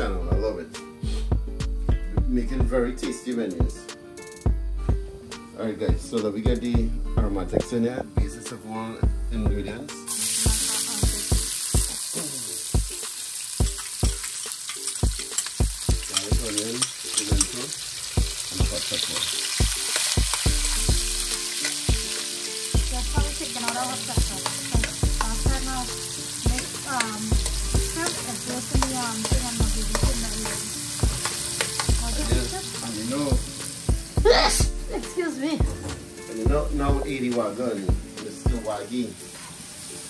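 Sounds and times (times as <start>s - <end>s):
vegetables sizzling in hot oil: 10.0s - 36.5s, 37.1s - 40.0s
metal spoon scraping a pan: 13.8s - 18.2s, 18.8s - 20.4s.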